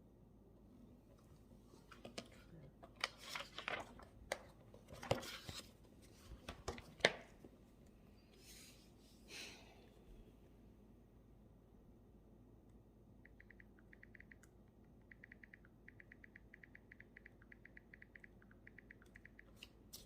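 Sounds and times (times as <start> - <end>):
sharp clicks and taps: 13.3 - 19.8.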